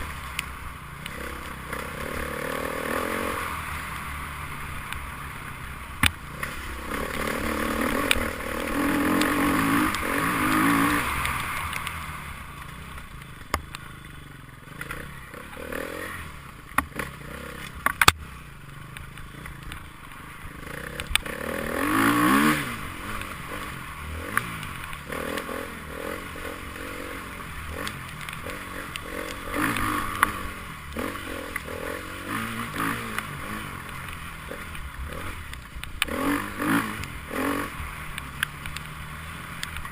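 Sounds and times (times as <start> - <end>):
motorcycles revving past: 0.0 - 18.4, 19.0 - 39.9.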